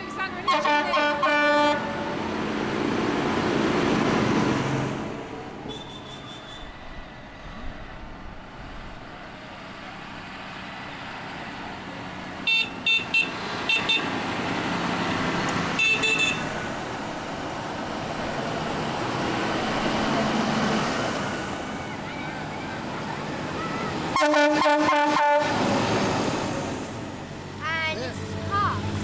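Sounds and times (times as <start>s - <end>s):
tractor engines and road noise: 0.0s - 29.0s
vehicle horns tooting: 0.1s - 2.2s, 5.6s - 6.9s, 12.4s - 14.2s, 15.6s - 16.7s, 23.7s - 25.7s.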